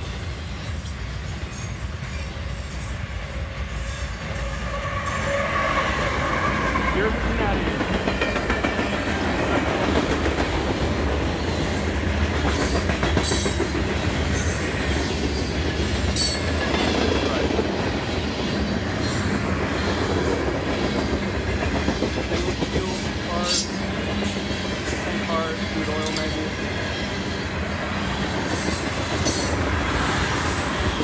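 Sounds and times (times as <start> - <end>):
train wheels clattering over rail joints: 7.6 - 27.3, 28.0 - 31.0.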